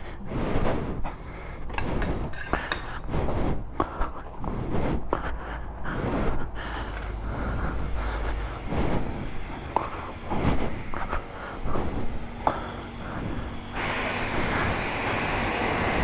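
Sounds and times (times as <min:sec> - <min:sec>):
steady low hum: 0:00.0 - 0:16.0
foam brush scrubbing: 0:06.0 - 0:16.0.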